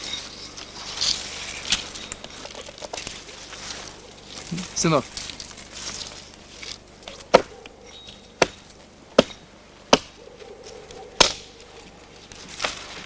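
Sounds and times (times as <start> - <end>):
axe chopping wood: 7.0 - 10.2, 11.2 - 11.6.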